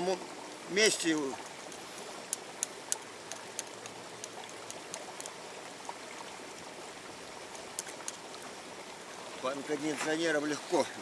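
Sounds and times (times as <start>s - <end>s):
river water flowing: 0.0s - 11.0s
faint high clicks: 0.5s - 5.4s, 7.5s - 8.2s.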